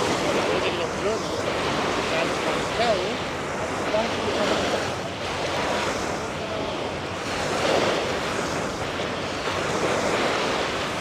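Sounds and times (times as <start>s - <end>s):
ocean surf breaking: 0.0s - 6.2s.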